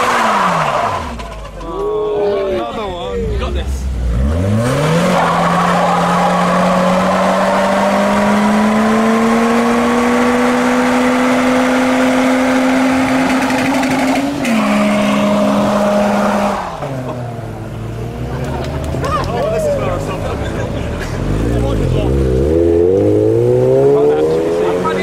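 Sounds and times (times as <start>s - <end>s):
car engine revving high: 0.0s - 1.3s, 3.8s - 18.3s, 21.0s - 25.0s.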